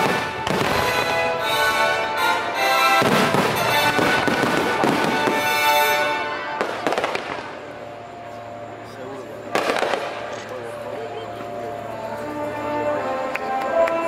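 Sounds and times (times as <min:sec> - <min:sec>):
fireworks bursting: 0:00.0 - 0:08.6, 0:09.5 - 0:11.6
patriotic music with sustained notes: 0:00.0 - 0:14.0.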